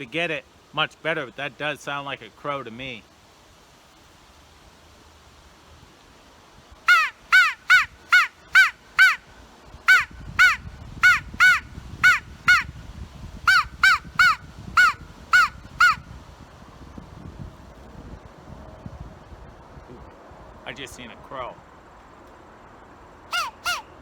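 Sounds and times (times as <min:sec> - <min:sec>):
crow call caws: 0:06.9 - 0:09.2, 0:09.9 - 0:12.7, 0:13.5 - 0:16.0, 0:23.3 - 0:23.9.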